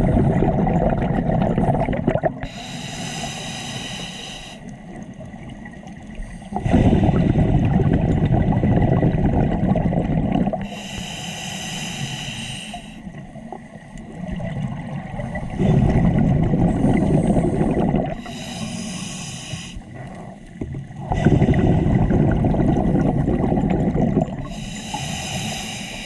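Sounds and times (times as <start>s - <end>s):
bubbling underwater exhale: 0.0s - 4.6s, 6.0s - 11.0s, 11.9s - 26.0s
hissing regulator inhale: 2.4s - 4.7s, 10.6s - 13.2s, 16.7s - 20.2s, 24.4s - 26.0s.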